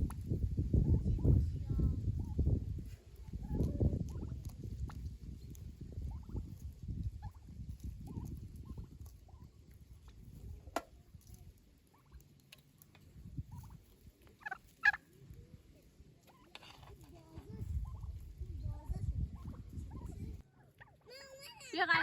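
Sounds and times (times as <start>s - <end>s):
domestic fowl calling: 14.4s - 15.0s.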